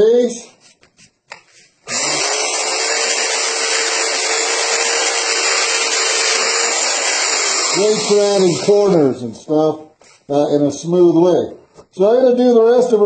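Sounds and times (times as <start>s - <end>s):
belt sander whining: 1.9s - 9.0s.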